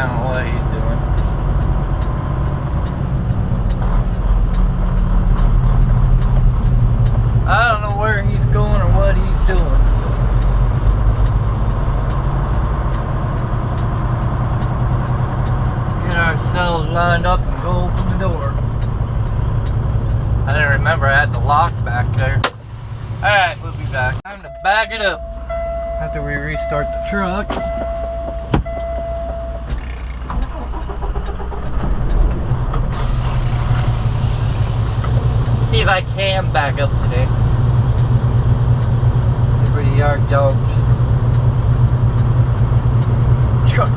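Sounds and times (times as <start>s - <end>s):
diesel engine rumbling: 0.0s - 43.9s
faint regular ticking: 0.3s - 22.2s
truck diesel engine idling: 29.8s - 43.9s.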